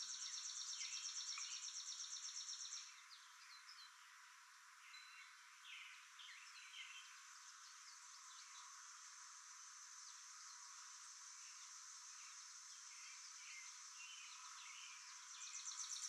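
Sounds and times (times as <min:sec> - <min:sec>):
faint bird chirps: 0:00.0 - 0:04.2, 0:10.0 - 0:16.0
steady hiss: 0:00.0 - 0:16.0.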